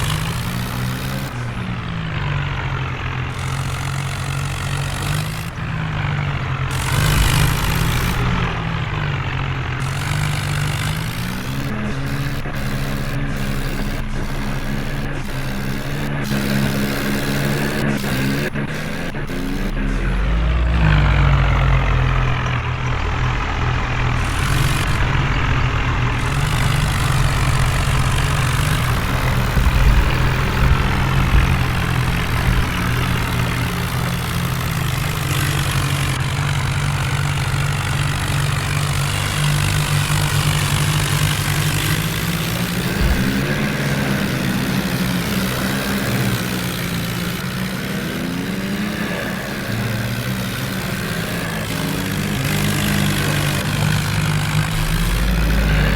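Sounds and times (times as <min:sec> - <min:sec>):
diesel engine idling low: 0:00.0 - 0:55.9.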